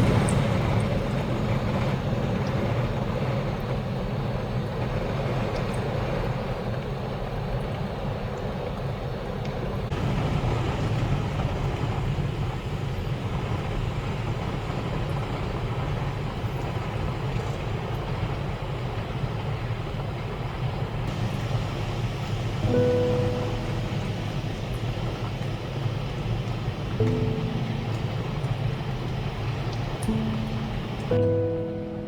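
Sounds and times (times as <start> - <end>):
wind and rain roaring on camper: 0.0 - 31.2
short pitched tone: 30.1 - 32.0.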